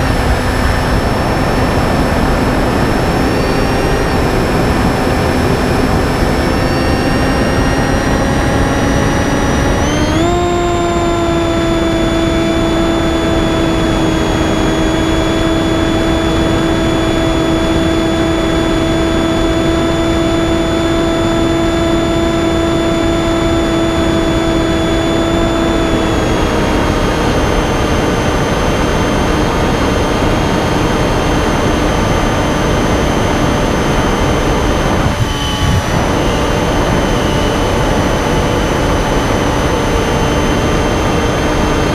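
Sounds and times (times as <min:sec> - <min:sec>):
model plane motor whining: 0:00.0 - 0:41.9
wind noise rushing: 0:32.8 - 0:39.4.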